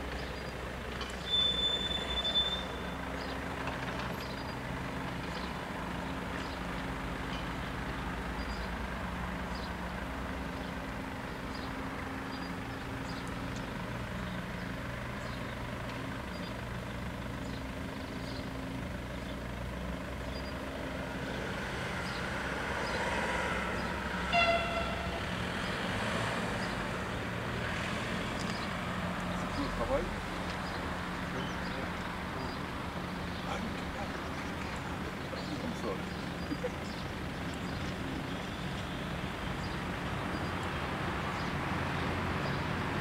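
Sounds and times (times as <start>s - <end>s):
train passing with rumble: 20.8s - 38.2s
short train horn toot: 24.3s - 25.3s.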